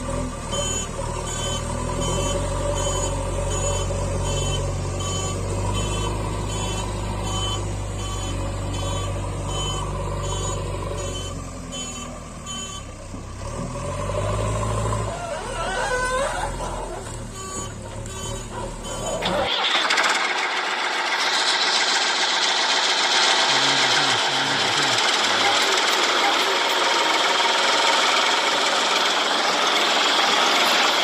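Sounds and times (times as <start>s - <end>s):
heavy diesel engine running: 0.0s - 31.0s
reversing alarm beeping: 0.5s - 13.0s, 17.3s - 19.9s.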